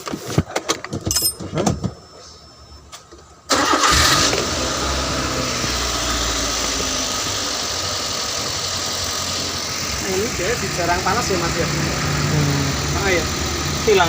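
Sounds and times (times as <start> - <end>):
van engine starting and idling: 3.4 - 14.0.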